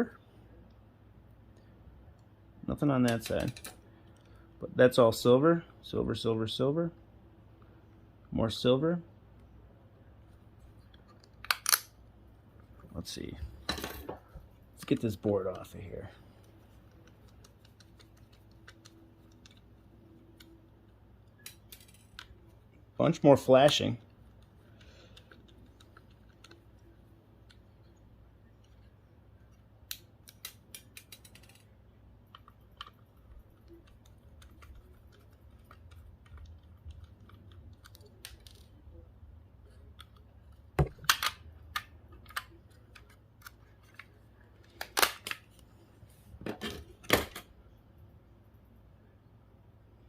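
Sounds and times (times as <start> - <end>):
tools and metal parts clinking: 21.4 - 22.2.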